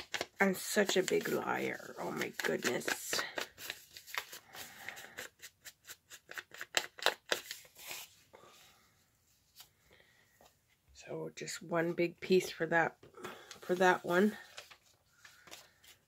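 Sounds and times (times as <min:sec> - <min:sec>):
crisp clicks and scrapes on paper: 0:00.0 - 0:08.1
faint paper rustling: 0:00.0 - 0:10.8, 0:12.3 - 0:16.0.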